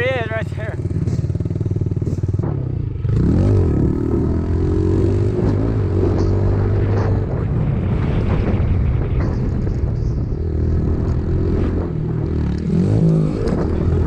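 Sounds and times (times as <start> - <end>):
dirt bike engine revving: 0.0 - 7.4, 10.4 - 14.0.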